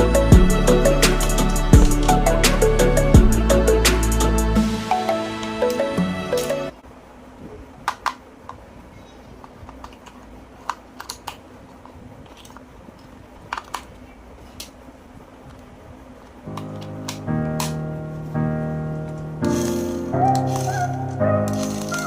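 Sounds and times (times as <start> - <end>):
background music: 0.0 - 6.8, 16.5 - 22.0.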